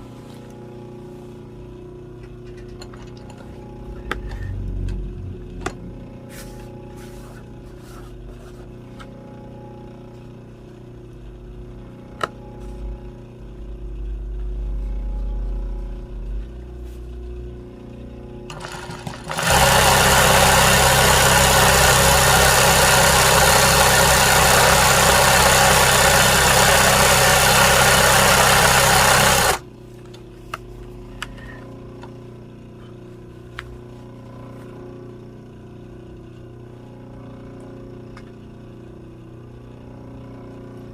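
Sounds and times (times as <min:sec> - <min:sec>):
motor-driven appliance humming: 0:00.0 - 0:40.9.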